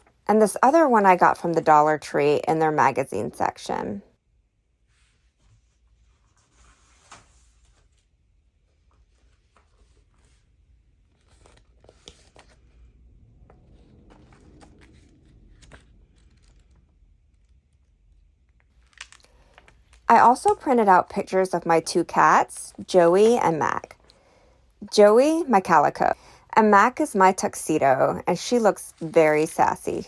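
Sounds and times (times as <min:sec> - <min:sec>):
paper rustling: 0:13.6 - 0:20.1.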